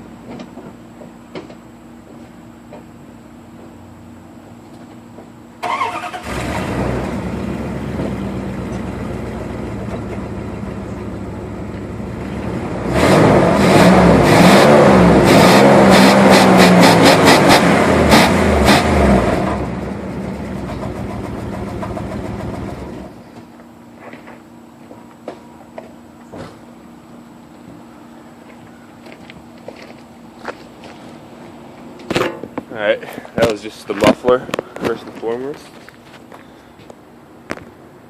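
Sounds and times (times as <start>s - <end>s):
truck engine starting: 5.6s - 23.2s
engine idling through exhaust: 6.2s - 12.9s, 19.3s - 24.3s
engine revving in quick blips: 12.3s - 19.7s.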